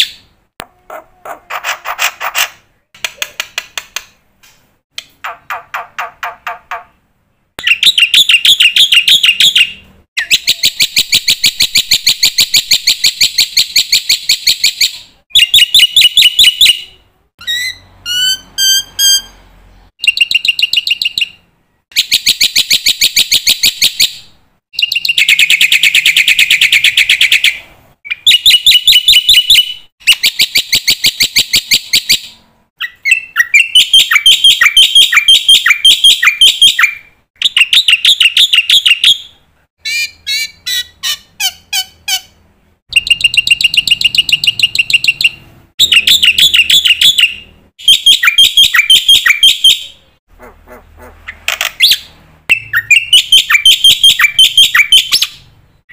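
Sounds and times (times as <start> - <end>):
starling singing: 7.6 - 21.4, 32.8 - 55.9.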